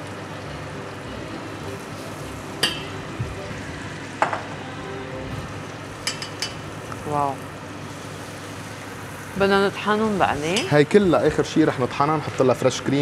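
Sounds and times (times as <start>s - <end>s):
vegetables sizzling in a pot: 0.0s - 13.0s
spatula clinking against pot: 2.6s - 3.0s, 6.0s - 6.6s.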